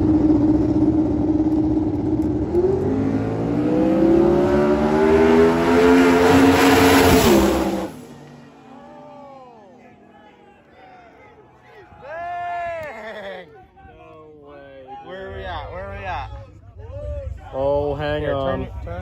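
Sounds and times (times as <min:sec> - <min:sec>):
drag racing car engine: 0:00.0 - 0:10.1.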